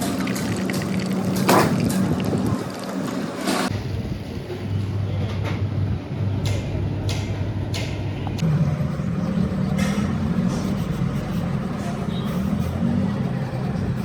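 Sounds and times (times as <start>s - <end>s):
machine motor hum: 8.2s - 14.0s.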